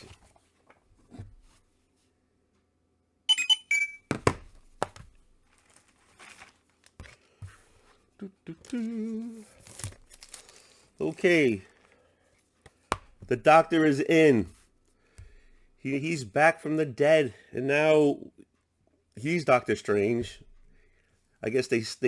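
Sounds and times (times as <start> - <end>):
books thunking down: 4.1 - 7.6
plastic bags rustling: 4.7 - 7.4, 8.7 - 12.0.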